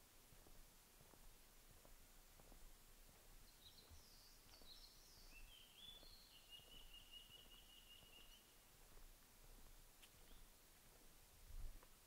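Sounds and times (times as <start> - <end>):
footsteps on forest road: 0.0 - 12.0
songbird chirping and trilling: 3.4 - 8.6, 10.1 - 10.5.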